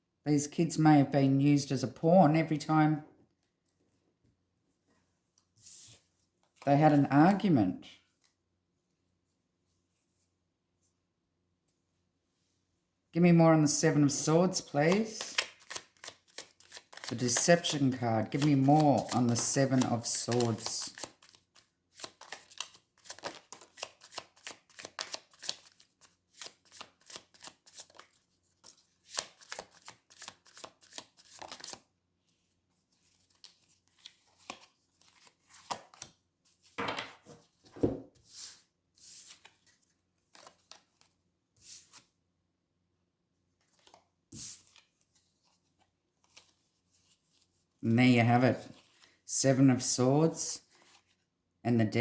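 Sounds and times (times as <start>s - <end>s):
cards being shuffled: 14.5s - 31.8s, 33.2s - 42.1s
cards tapping and sliding: 14.9s - 21.4s.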